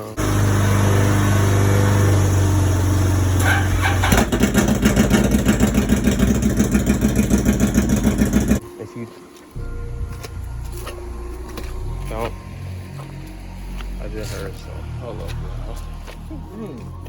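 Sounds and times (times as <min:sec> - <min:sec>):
atv engine running: 0:00.0 - 0:08.6.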